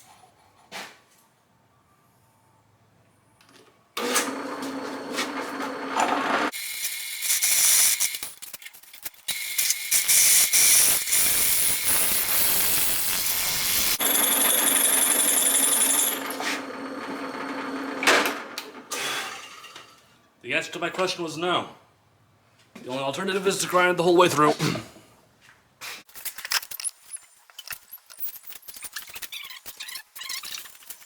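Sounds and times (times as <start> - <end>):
electric drill motor whine: 4.0 - 6.6, 12.9 - 18.2
drill bit scraping on steel: 9.3 - 16.7.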